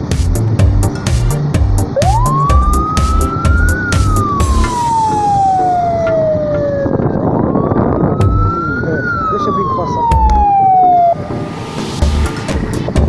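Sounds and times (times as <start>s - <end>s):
music with heavy thumping beat: 0.0s - 4.9s, 8.2s - 8.5s, 12.0s - 13.0s
siren wailing: 2.0s - 12.9s.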